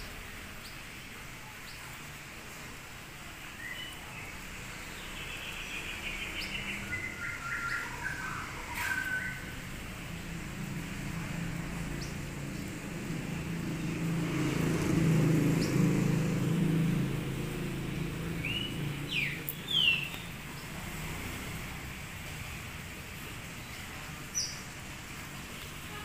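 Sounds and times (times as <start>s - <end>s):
passing vehicle engine hum: 4.4s - 25.9s
bird chirps: 5.0s - 9.6s, 18.4s - 20.4s.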